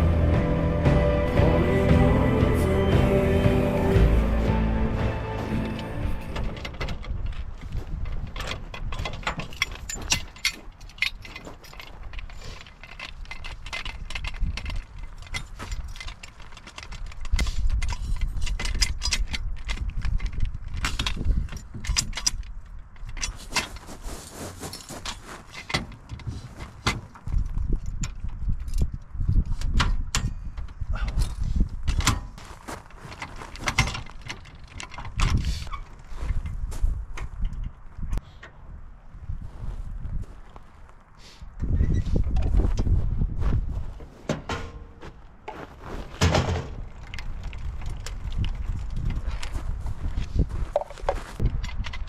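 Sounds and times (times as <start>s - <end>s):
trailer rattling and knocking: 0.0s - 12.0s, 44.0s - 45.2s, 46.0s - 51.6s.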